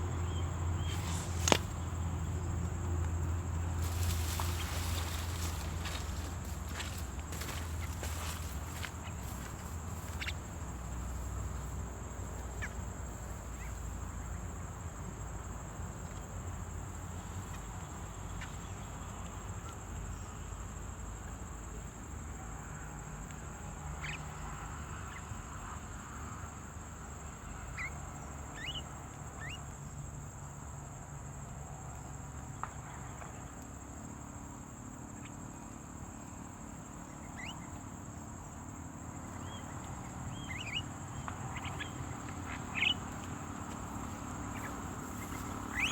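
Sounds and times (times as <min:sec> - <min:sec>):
high-pitched insect drone: 0:03.7 - 0:12.8, 0:39.5 - 0:45.9.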